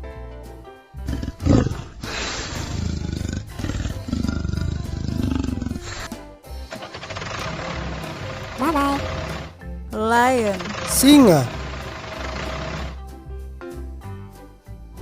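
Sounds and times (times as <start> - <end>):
background music: 0.0 - 15.0
leopard roaring: 1.0 - 6.1, 6.8 - 9.6, 10.5 - 13.0.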